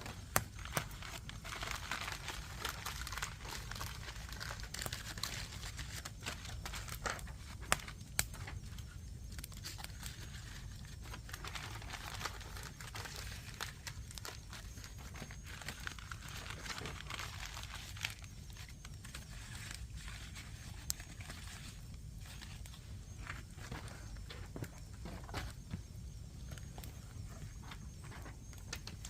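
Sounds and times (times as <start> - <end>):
sharp pops of fire: 0.0 - 1.4, 4.8 - 9.9
wood fire crackling: 0.0 - 29.0.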